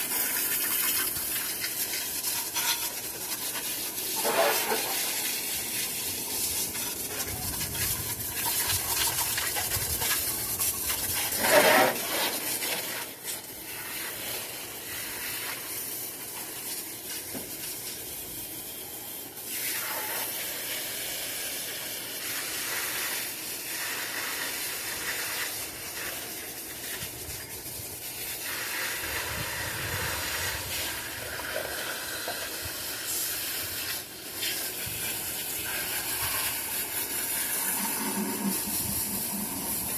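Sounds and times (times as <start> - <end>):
spray hissing: 19.6 - 39.9.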